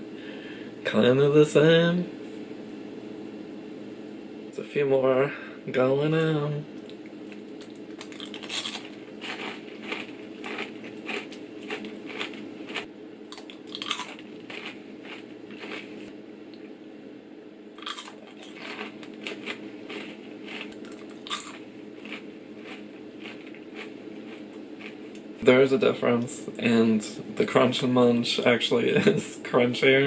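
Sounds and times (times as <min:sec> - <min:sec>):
steady low hum: 0:00.0 - 0:30.0
person crunching popcorn: 0:06.8 - 0:16.0, 0:17.8 - 0:25.3.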